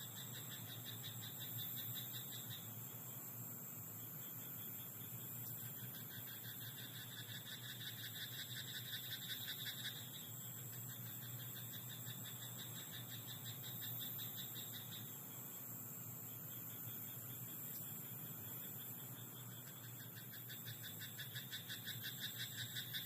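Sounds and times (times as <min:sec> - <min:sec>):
frogs croaking: 0:00.0 - 0:23.0
steady background hiss: 0:00.0 - 0:23.0.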